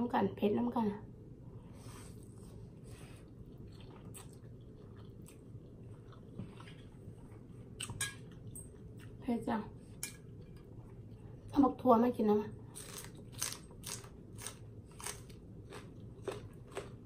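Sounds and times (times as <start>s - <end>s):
person chewing noodles: 2.1s - 9.2s, 12.8s - 17.0s.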